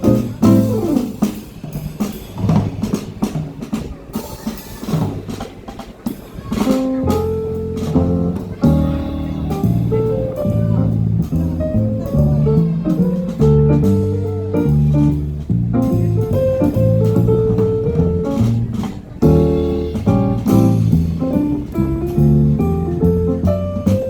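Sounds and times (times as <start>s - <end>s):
bass notes: 0.0s - 1.3s, 6.8s - 24.0s
keyboard notes: 0.0s - 1.4s, 6.7s - 24.0s
drum kit with cymbals: 0.0s - 24.0s.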